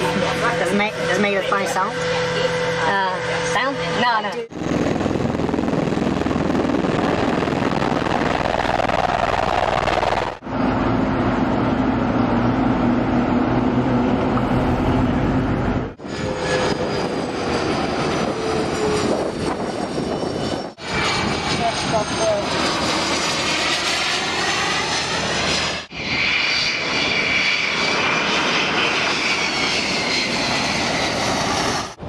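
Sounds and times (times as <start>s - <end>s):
steady low hum: 0.0s - 16.2s
aircraft engine noise: 0.0s - 32.0s.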